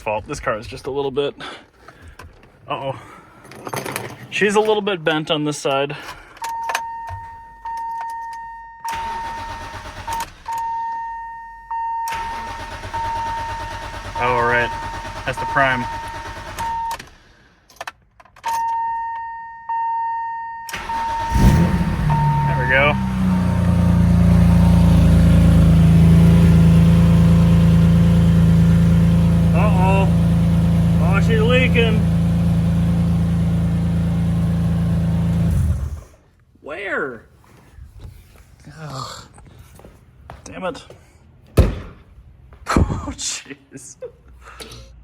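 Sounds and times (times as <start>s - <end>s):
fuel pump whining: 12.1s - 17.3s, 20.7s - 36.2s
car engine idling: 12.2s - 16.6s, 20.8s - 36.1s.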